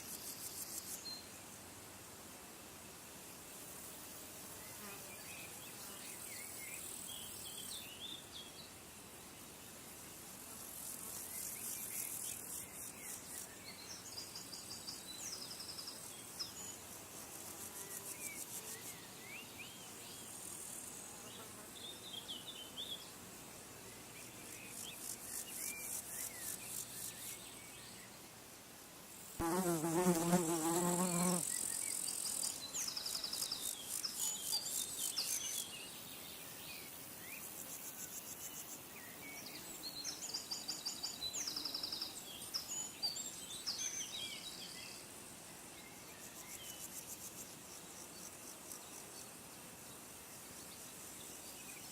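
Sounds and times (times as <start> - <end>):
flying insect buzzing: 15.6 - 19.1, 29.2 - 35.3.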